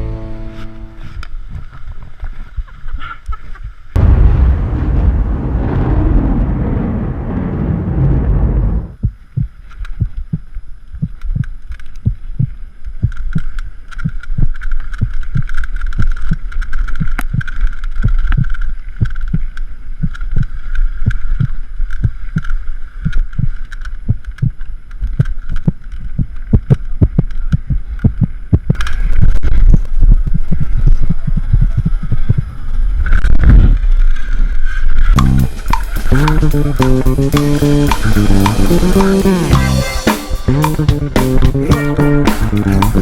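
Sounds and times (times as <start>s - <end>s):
wind rumble on microphone: 4.0s - 9.1s.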